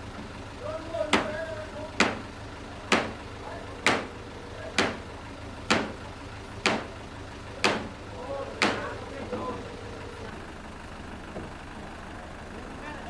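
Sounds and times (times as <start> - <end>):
vehicle engine idling: 0.0 - 13.0
ringing hammer blows: 2.9 - 3.2, 3.9 - 5.1, 5.7 - 6.0, 6.7 - 7.0.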